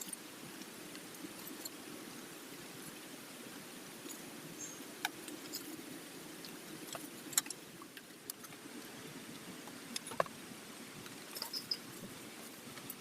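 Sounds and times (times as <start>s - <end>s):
steady rain falling: 0.0s - 13.0s
light clicks and clinks: 5.0s - 5.8s, 6.4s - 8.6s, 11.1s - 13.0s.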